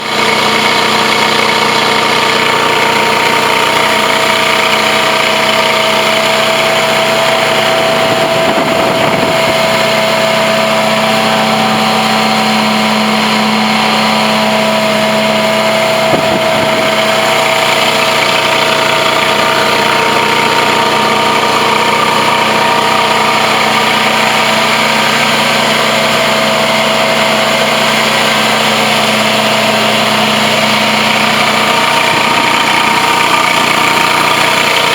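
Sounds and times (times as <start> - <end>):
carpet extractor hum and whine: 6.8 - 18.1.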